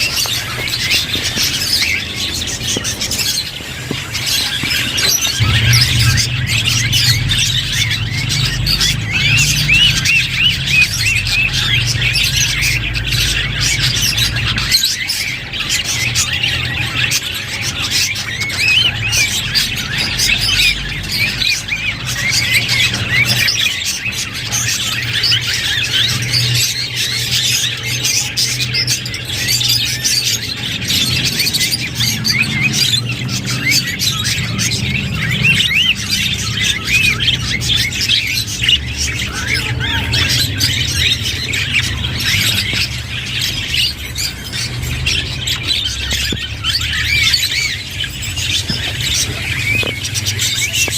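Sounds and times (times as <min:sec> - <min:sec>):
budgerigars chattering: 0:00.0 - 0:50.9
low hum: 0:05.3 - 0:10.8.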